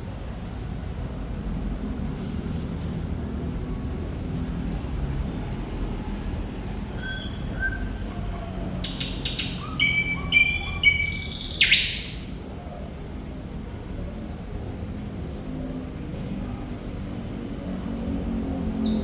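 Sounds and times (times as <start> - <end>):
bird singing: 5.9 - 12.4, 18.3 - 19.0.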